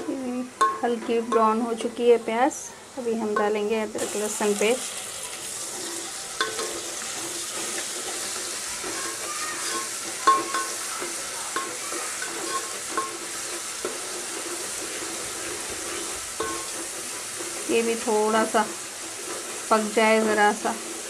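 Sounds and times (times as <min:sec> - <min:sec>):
onions sizzling in hot oil: 0:00.0 - 0:21.0
spatula knocking and scraping pot: 0:05.8 - 0:17.8.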